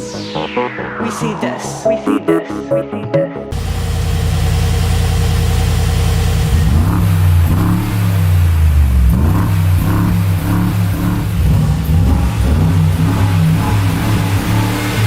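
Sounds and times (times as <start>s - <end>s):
car engine idling and revving: 3.5s - 15.0s.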